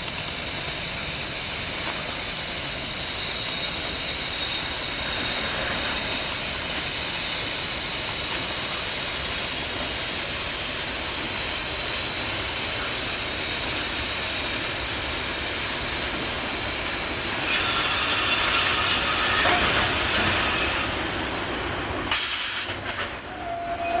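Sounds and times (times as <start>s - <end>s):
train wheels rumbling: 0.0s - 24.0s
loud hiss: 16.7s - 21.0s, 22.0s - 23.6s
high-pitched wheel squeal: 17.4s - 20.9s, 22.0s - 24.0s.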